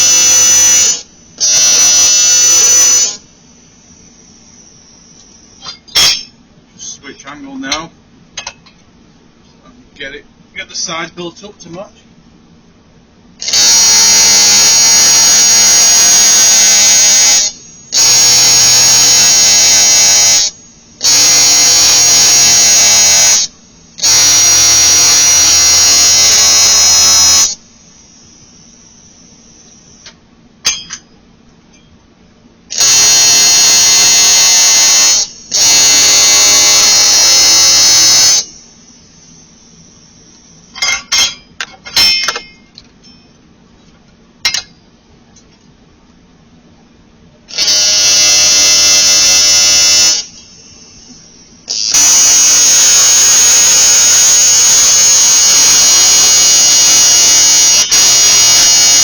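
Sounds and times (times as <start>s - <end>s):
welding arc buzzing: 0.0s - 6.5s, 13.4s - 30.8s, 32.7s - 41.4s, 47.5s - 59.0s.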